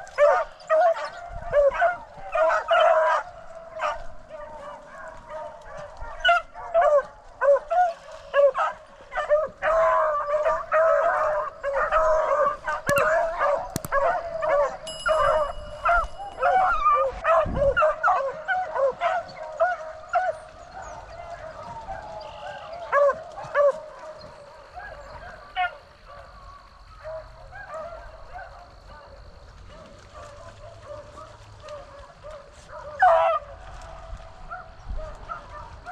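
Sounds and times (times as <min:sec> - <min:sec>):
dogs baying: 0:00.0 - 0:35.9.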